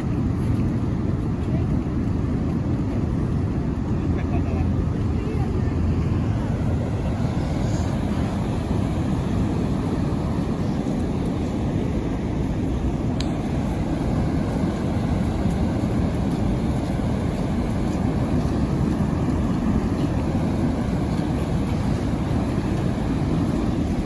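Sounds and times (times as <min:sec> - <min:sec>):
waterfall roaring: 0:04.6 - 0:24.0.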